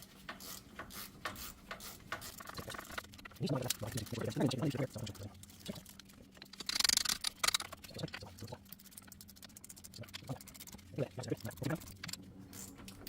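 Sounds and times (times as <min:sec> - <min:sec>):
ratchet clicking: 0:00.3 - 0:04.1, 0:06.5 - 0:07.8.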